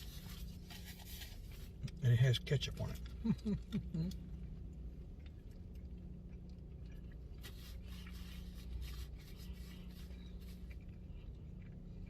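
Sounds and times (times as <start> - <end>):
burger wrapper rustling: 0.0 - 1.9, 7.3 - 10.9
steady low hum: 0.0 - 12.0.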